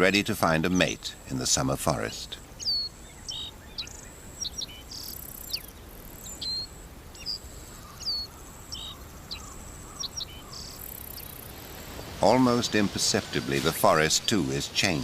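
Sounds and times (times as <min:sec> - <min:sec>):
bird chirps and whistles: 0:02.6 - 0:07.4.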